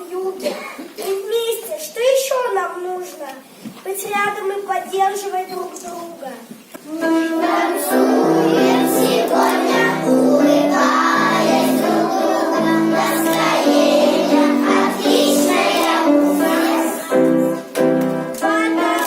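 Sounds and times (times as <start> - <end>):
children singing: 6.9 - 17.6, 18.3 - 19.0
backing track melody: 6.9 - 19.0.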